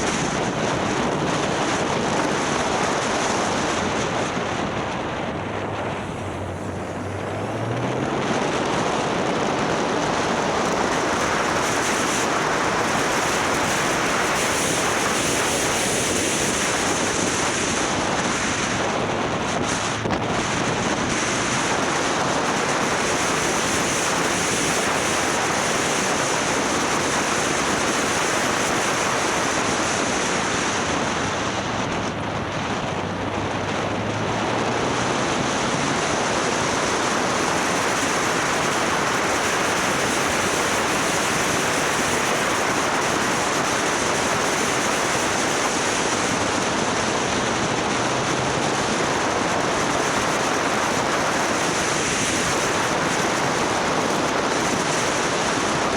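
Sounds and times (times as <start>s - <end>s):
faint motorcycle engine hum: 0.0s - 15.8s
wind rush over microphone: 0.0s - 55.9s.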